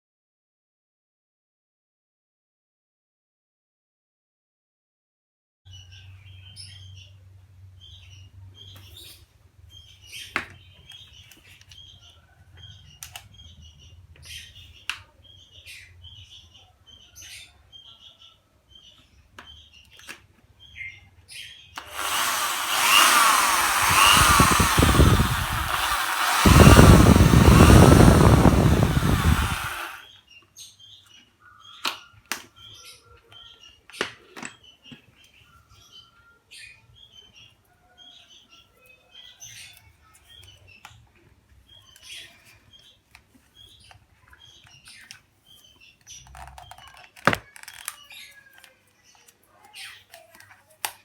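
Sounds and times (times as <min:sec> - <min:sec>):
small birds chirping: 0:05.7 - 0:51.0
electric power tool whining: 0:21.8 - 0:30.0.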